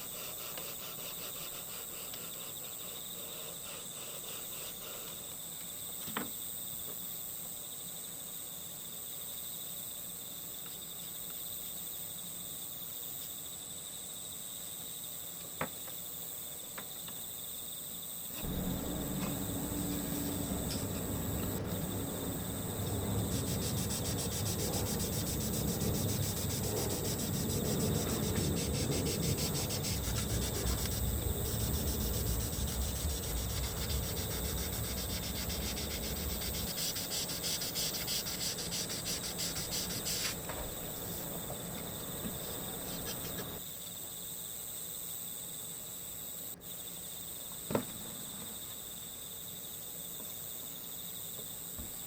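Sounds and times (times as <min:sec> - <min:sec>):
crickets chirping: 0:00.0 - 0:52.0
rubbing plastic part: 0:18.4 - 0:40.5.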